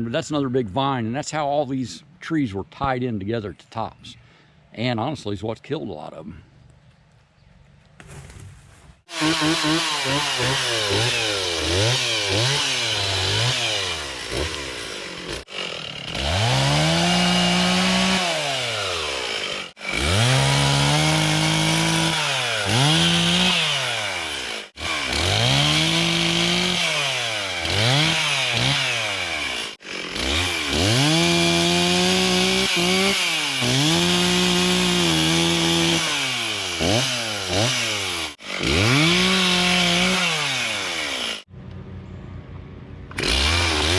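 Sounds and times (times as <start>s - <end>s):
chainsaw cutting wood: 9.0s - 41.5s, 43.1s - 43.9s.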